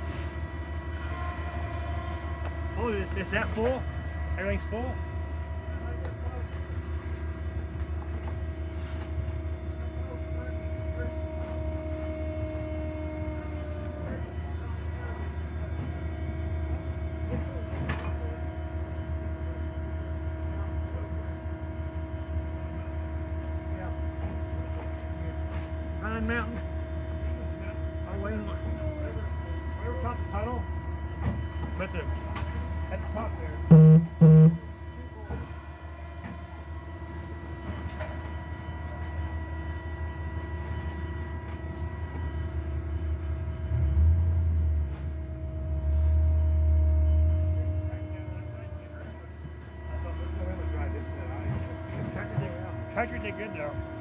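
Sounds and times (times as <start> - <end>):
heavy engine rumbling: 0.0 - 54.0
faint whine: 33.7 - 34.7.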